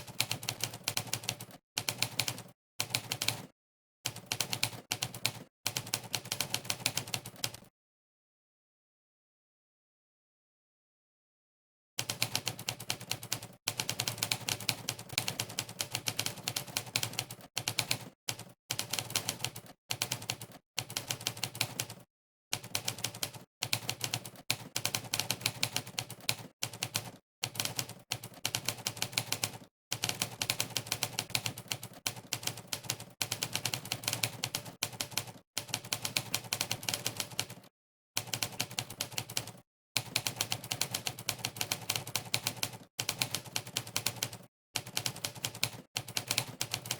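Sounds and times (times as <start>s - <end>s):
typewriter keystroke clacks: 22.6s - 37.6s, 38.2s - 46.9s.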